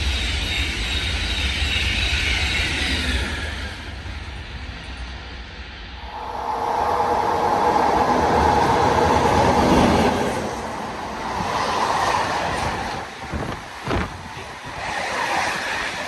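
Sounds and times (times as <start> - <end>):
train wheels on rails: 0.0 - 16.0.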